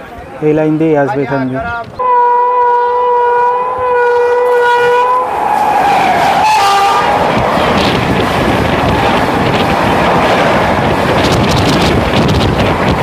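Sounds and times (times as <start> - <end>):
train horn blasts: 2.0 - 7.2
train passing at speed: 2.0 - 13.0.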